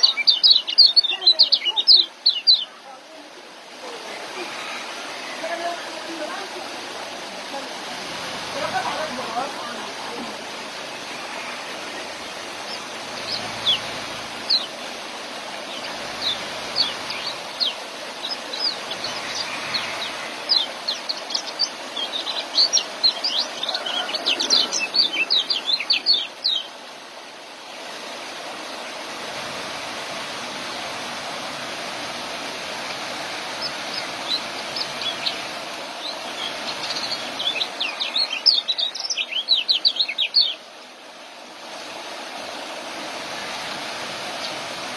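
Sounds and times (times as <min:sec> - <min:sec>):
small bird twittering: 0:00.0 - 0:02.7, 0:12.6 - 0:14.8, 0:15.7 - 0:26.7, 0:33.6 - 0:35.4, 0:36.0 - 0:40.6
steady rushing hiss: 0:00.0 - 0:44.9.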